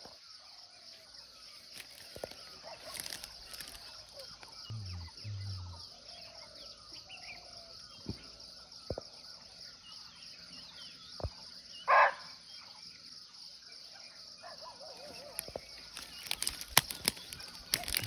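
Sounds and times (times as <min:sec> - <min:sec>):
insects trilling: 0:00.0 - 0:18.0
small bird chirps: 0:01.9 - 0:09.0
brief low sounds: 0:04.7 - 0:05.8.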